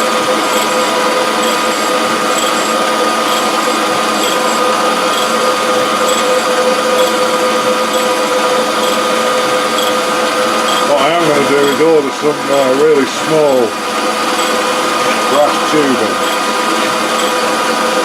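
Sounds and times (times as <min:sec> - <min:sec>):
grinder whine: 0:00.0 - 0:18.0
faint high ticks: 0:00.5 - 0:00.8, 0:01.4 - 0:05.4, 0:06.1 - 0:06.3, 0:07.0 - 0:07.2, 0:07.9 - 0:08.2, 0:08.8 - 0:09.0, 0:09.8 - 0:10.0, 0:10.7 - 0:10.9, 0:11.6 - 0:11.8, 0:14.4 - 0:14.6, 0:16.2 - 0:16.4, 0:17.2 - 0:17.4.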